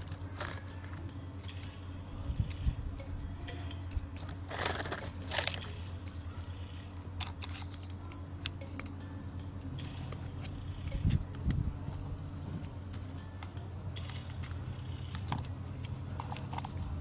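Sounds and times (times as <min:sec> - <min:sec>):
low hum: 0:00.0 - 0:17.0
toy scraping and rattling: 0:04.2 - 0:08.0.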